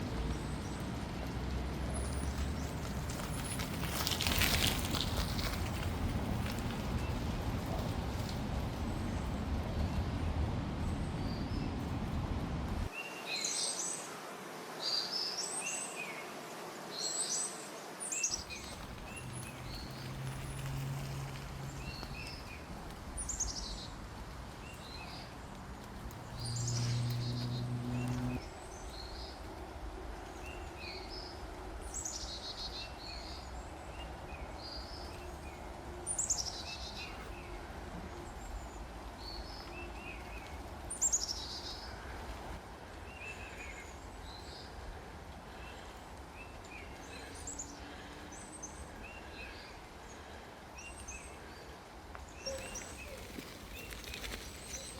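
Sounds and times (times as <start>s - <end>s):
low rumble: 0.0s - 12.9s, 18.4s - 29.0s
low hum: 4.9s - 12.9s, 18.4s - 29.3s.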